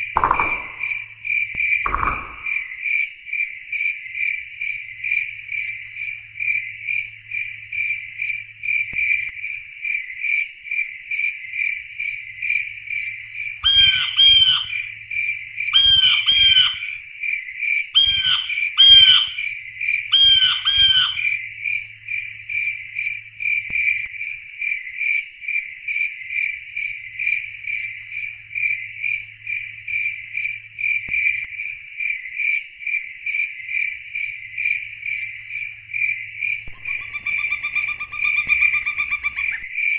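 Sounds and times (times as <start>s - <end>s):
frog croaking: 0.0s - 2.8s, 13.6s - 14.8s, 15.7s - 17.0s, 18.0s - 19.5s, 20.1s - 21.3s, 36.7s - 39.7s
crickets chirping: 0.0s - 39.9s.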